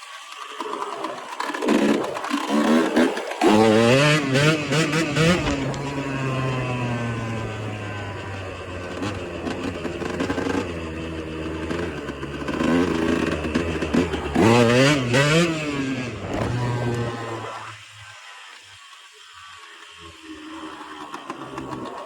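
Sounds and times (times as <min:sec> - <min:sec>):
motorcycle engine running: 0:03.4 - 0:17.8.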